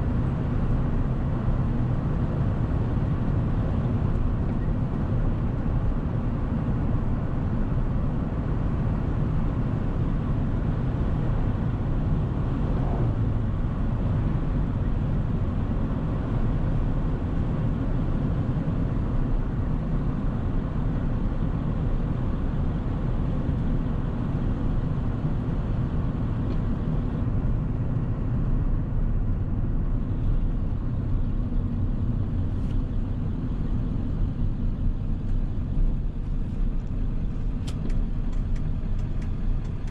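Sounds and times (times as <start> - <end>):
diesel engine rumbling: 0.0 - 39.9
road noise: 0.0 - 39.9.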